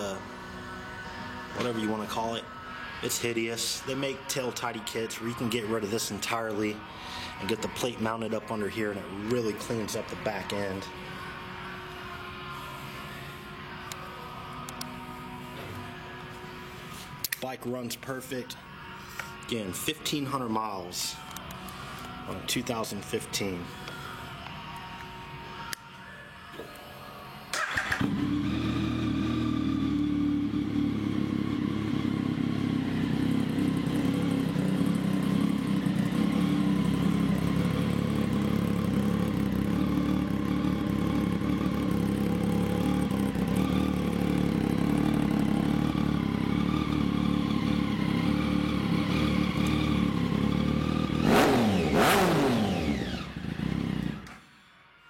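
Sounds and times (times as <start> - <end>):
motorcycle engine starting and idling: 27.5 - 54.4
motorcycle engine revving: 27.6 - 54.3.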